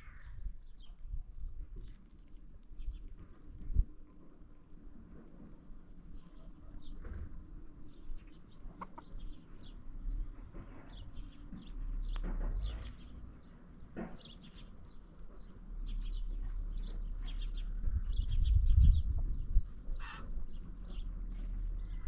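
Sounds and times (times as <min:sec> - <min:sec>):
birds chirping: 0:06.0 - 0:22.0
low rumble: 0:14.8 - 0:22.0.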